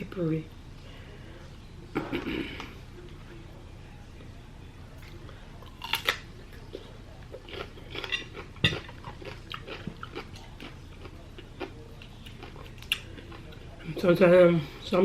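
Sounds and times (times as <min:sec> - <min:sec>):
chewing: 0:05.0 - 0:14.0.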